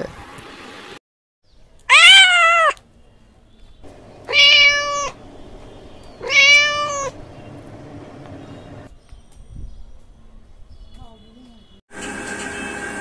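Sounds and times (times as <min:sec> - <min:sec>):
cat meowing: 0:01.9 - 0:02.8, 0:04.3 - 0:05.2, 0:06.2 - 0:07.2.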